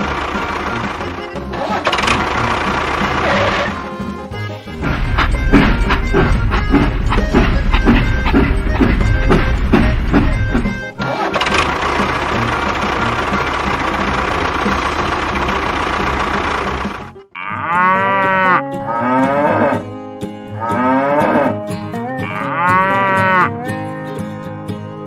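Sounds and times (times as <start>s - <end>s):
loud rushing noise: 4.8s - 10.8s
cow mooing: 17.3s - 19.9s, 20.5s - 24.2s.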